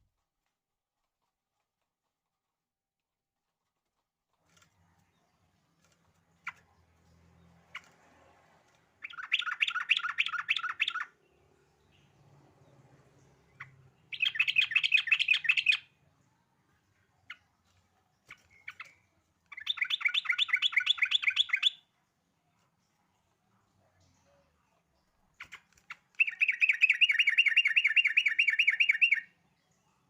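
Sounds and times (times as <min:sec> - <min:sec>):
bird chattering song: 0:09.0 - 0:12.2, 0:13.2 - 0:16.0, 0:18.2 - 0:21.9, 0:25.3 - 0:29.4.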